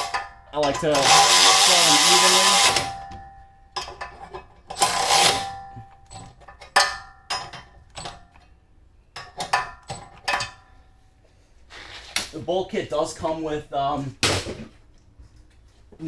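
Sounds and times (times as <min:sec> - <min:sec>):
metal tools clinking and clanking: 0:00.0 - 0:08.6, 0:09.2 - 0:10.7.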